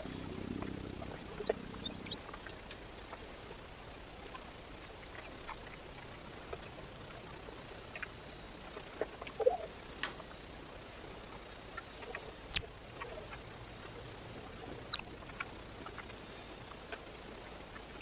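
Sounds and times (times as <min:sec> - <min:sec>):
steady hiss: 0:00.0 - 0:18.0
light taps and clicks: 0:10.0 - 0:10.3.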